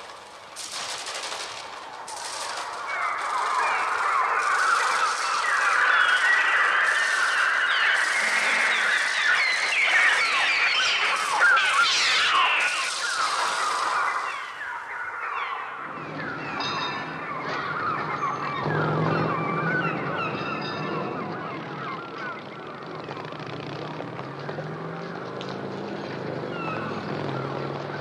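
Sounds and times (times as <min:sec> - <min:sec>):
city traffic rumble: 0:00.0 - 0:14.8, 0:15.4 - 0:28.0
wing flutter: 0:00.0 - 0:14.9
electronic gull cries: 0:02.7 - 0:23.0.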